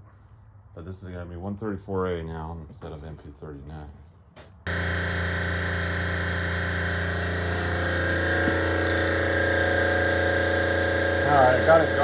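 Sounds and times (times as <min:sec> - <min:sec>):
refrigeration compressor humming: 0:04.7 - 0:12.0.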